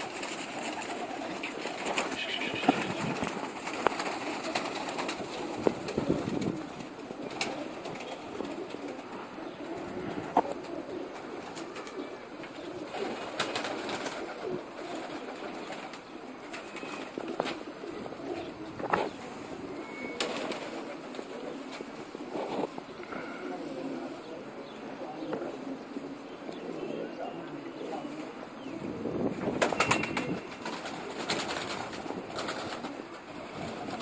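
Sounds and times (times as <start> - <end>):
pigeons cooing: 0.0 - 34.0
clicks and taps of birds moving: 1.7 - 5.1.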